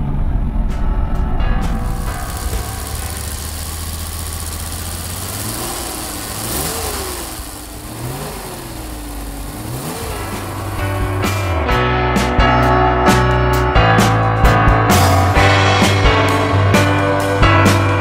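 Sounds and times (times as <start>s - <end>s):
car engine revving: 1.7s - 12.0s.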